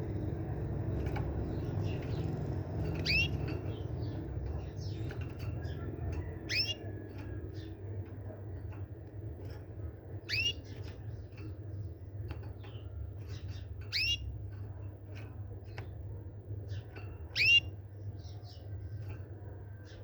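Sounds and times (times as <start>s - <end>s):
steady low rumble: 0.0s - 17.2s
small birds chirping: 0.0s - 20.0s
bird sweeping calls: 17.4s - 17.7s.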